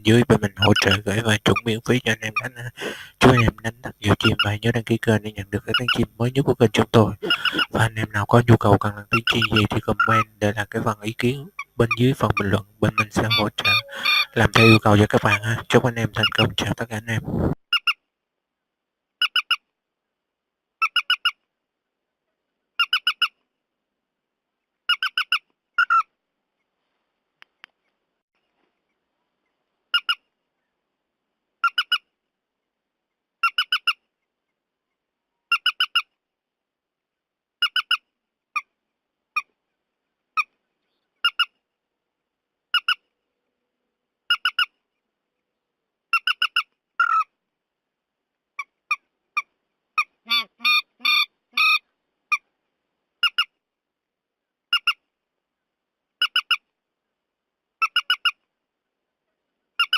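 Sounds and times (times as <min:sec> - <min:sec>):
bird calling short notes: 0:11.5 - 0:16.6.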